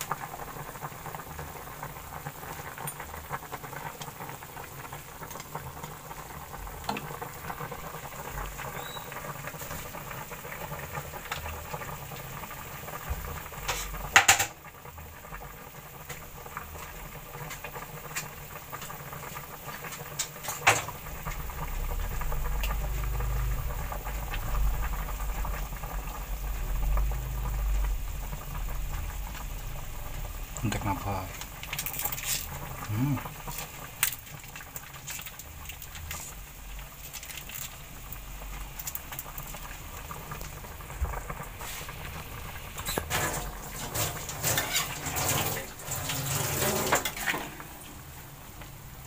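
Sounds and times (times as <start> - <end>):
pot of food bubbling: 0.0 - 49.0
low rumble: 21.0 - 30.7.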